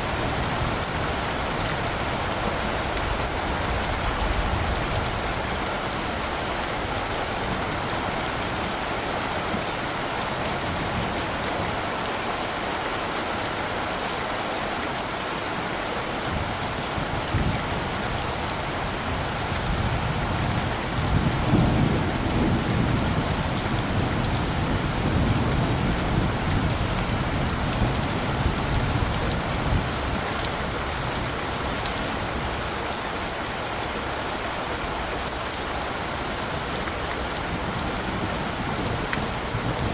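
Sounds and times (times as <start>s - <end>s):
rain falling: 0.0s - 39.9s
distant thunder rumbling: 16.3s - 31.3s.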